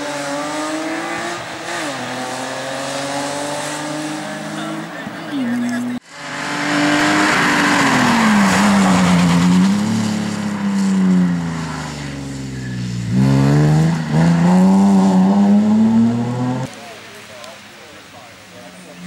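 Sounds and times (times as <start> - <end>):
rally car engine revving: 0.0 - 16.7
tyre noise hiss: 14.7 - 19.0.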